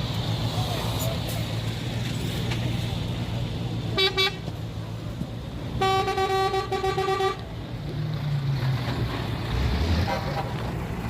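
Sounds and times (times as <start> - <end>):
diesel engine rumbling: 0.0 - 11.0
truck horn: 3.9 - 4.4, 5.8 - 7.5, 9.9 - 10.6.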